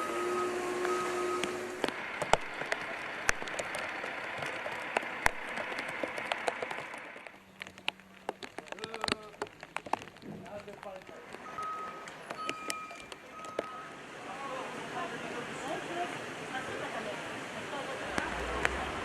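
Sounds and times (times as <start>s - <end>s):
heavy rain on hard surface: 0.0s - 19.0s
water drips: 0.8s - 14.0s.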